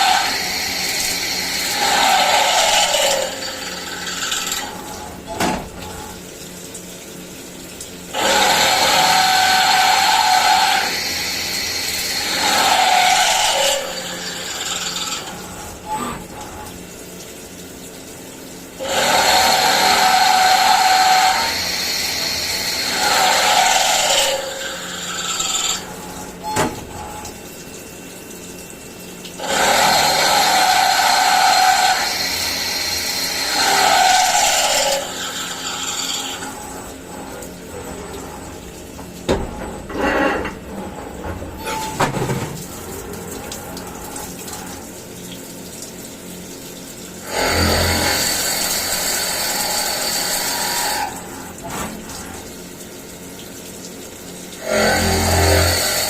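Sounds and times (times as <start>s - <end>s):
milling machine cutting metal: 0.0s - 6.2s, 8.1s - 16.8s, 18.8s - 28.0s, 29.4s - 42.0s, 47.1s - 53.3s, 54.3s - 56.0s
machine whine: 54.5s - 56.0s.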